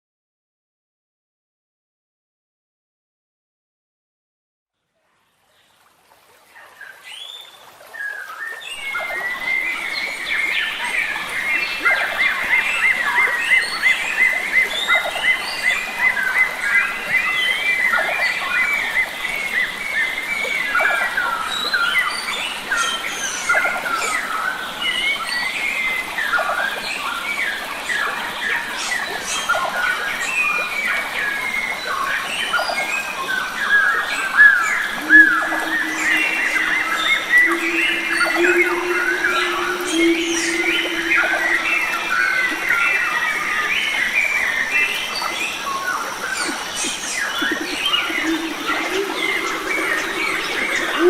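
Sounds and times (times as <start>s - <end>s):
forest birds chirping: 6.6s - 51.0s
stream rushing: 7.7s - 51.0s
high repeated bird note: 34.9s - 43.1s, 47.2s - 51.0s
low steady drone: 34.9s - 43.6s, 46.4s - 51.0s.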